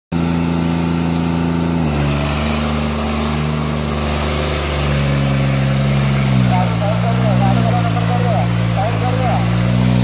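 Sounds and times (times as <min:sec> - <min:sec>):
tractor diesel engine running: 0:00.1 - 0:10.0.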